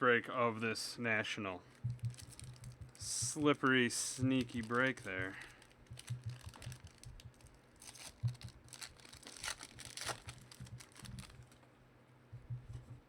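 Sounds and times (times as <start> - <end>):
foil wrapper crinkling and tearing: 1.7 - 3.2, 4.0 - 11.6
cards rustling and clicking: 1.7 - 3.5, 4.1 - 11.6.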